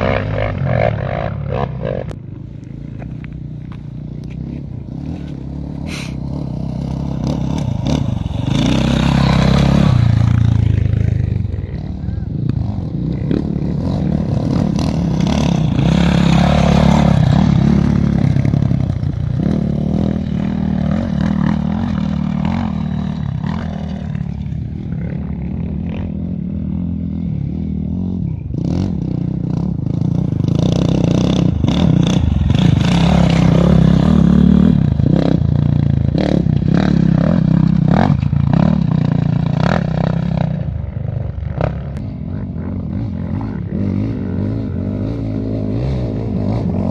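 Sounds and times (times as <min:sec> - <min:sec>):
engine running: 0:00.0 - 0:46.9.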